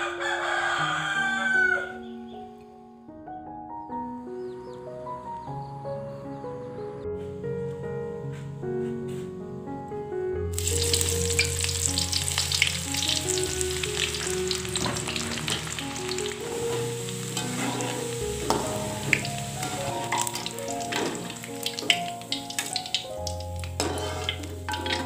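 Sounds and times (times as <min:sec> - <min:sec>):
shallots deep-frying in oil: 0:10.5 - 0:25.0
spatula scraping wok: 0:10.6 - 0:22.9, 0:23.6 - 0:25.0.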